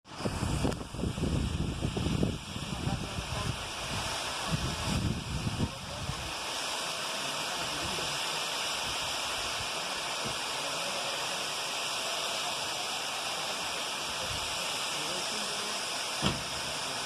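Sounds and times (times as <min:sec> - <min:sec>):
waterfall rushing: 0:00.1 - 0:17.0.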